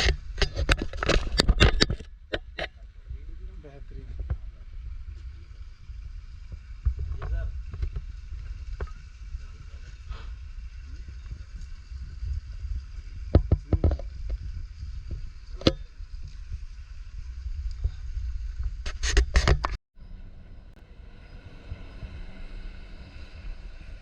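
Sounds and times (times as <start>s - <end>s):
wind buffeting microphone: 0.0s - 19.7s
microphone handling knocks: 13.2s - 15.8s.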